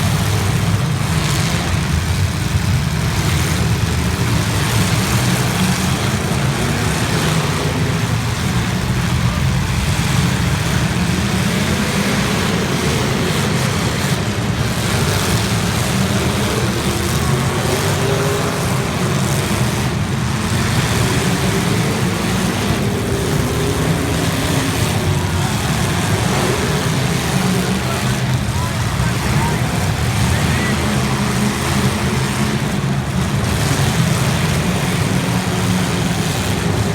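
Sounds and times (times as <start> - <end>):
car engines rumbling: 0.0 - 36.9.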